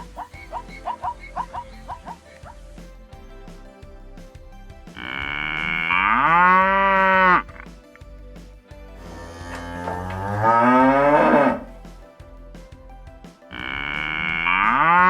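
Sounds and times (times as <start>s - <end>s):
cow mooing: 10.3s - 11.7s.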